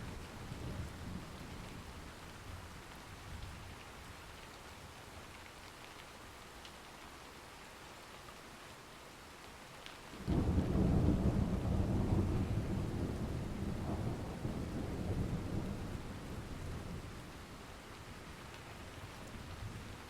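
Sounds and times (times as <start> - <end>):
steady rain: 0.0 - 20.0
thunderclap rumble: 10.2 - 17.1.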